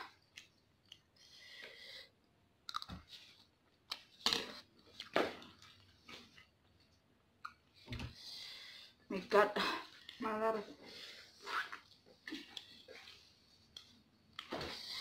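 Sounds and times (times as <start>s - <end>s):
person chewing noodles: 2.7s - 2.9s.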